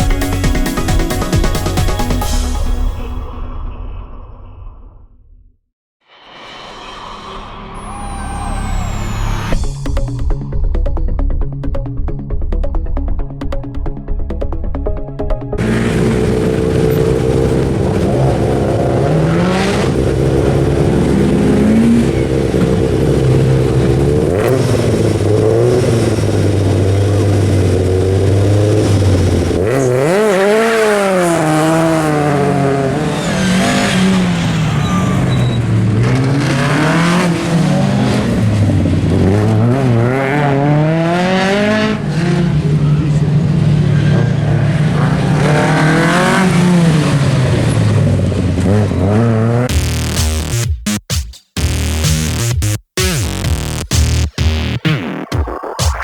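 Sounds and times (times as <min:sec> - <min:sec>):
rally car engine at high revs: 0:15.6 - 0:50.6.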